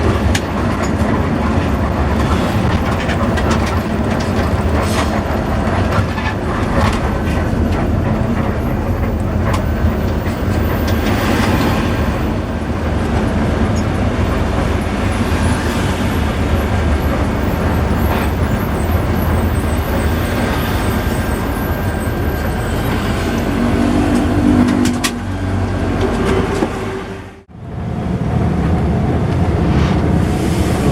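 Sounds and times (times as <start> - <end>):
knocks and rattles: 0.0 - 11.7
bus engine and road rumble: 0.0 - 30.9.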